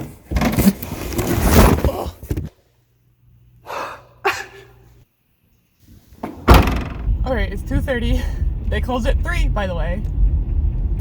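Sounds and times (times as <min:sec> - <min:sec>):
person exhaling: 0:03.6 - 0:04.2
person gasping breath: 0:03.6 - 0:04.2.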